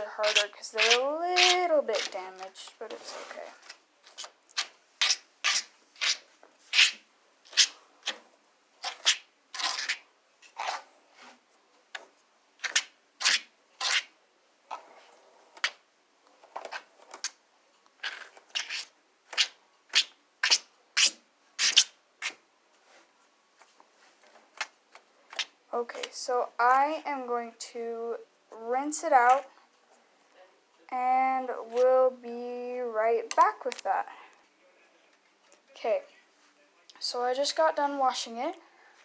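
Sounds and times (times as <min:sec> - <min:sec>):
comb scratching through hair: 0:00.0 - 0:08.2, 0:08.8 - 0:11.4.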